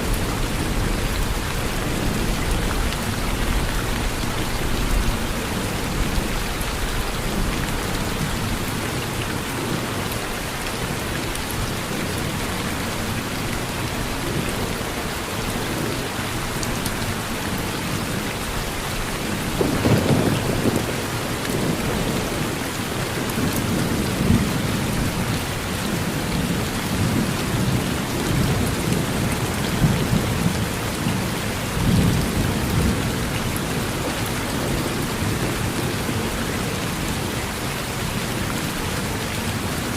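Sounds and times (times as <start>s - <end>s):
rain falling on a porch: 0.0s - 39.9s
low rumbling thunder: 19.4s - 22.5s.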